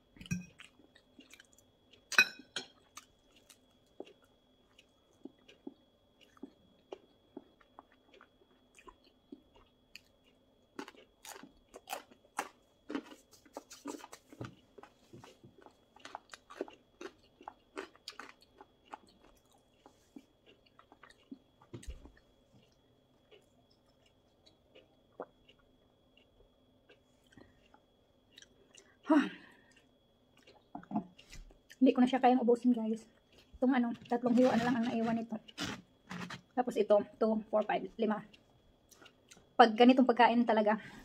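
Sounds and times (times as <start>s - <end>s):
chewing pizza crust: 0.2s - 36.6s, 37.6s - 39.6s.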